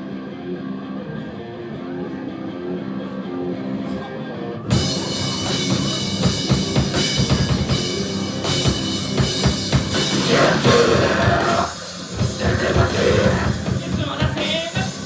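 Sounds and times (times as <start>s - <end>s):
distorted guitars: 0.0s - 15.0s
heavy metal rock band playing: 0.0s - 15.0s
pounding drum kit: 4.7s - 15.0s
person singing: 10.0s - 15.0s.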